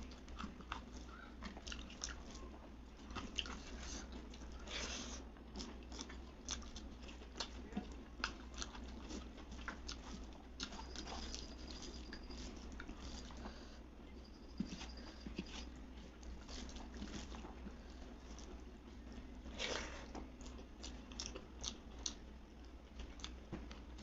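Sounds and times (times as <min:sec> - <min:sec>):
person chewing crisp food: 0:00.0 - 0:13.8, 0:14.5 - 0:24.0
low hum: 0:08.8 - 0:21.5.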